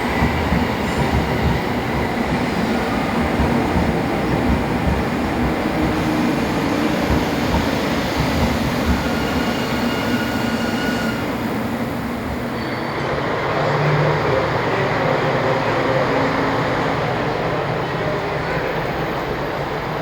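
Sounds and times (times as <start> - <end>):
train rumbling on rails: 0.0 - 20.0
faint high ringing tones: 8.4 - 13.2.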